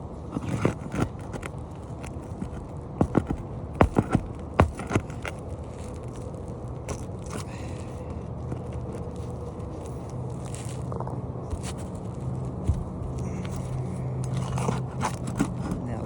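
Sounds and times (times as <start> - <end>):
shingles cracking and scraping: 0.0 - 16.0.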